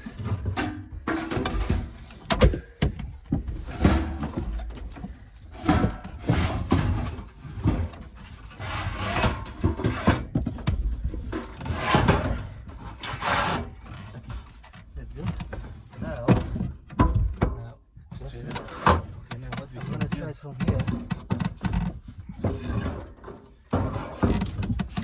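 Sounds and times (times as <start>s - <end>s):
wooden boards knocking and scraping: 0.0s - 25.0s.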